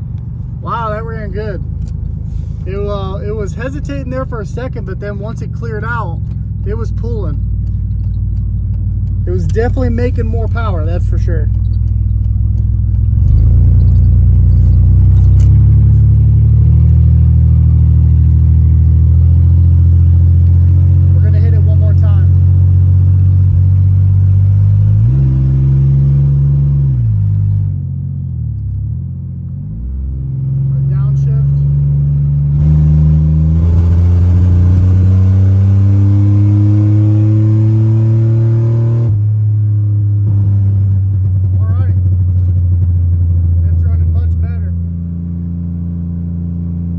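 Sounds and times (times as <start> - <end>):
pickup engine running under load: 0.0 - 27.7
engine at full throttle: 9.0 - 27.7, 29.7 - 46.9.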